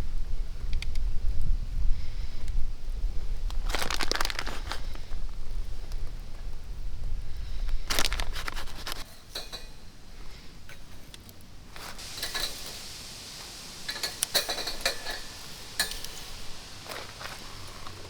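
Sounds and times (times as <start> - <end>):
metal cookware clinking and scraping: 9.0 - 9.9, 12.0 - 13.0, 13.9 - 16.5.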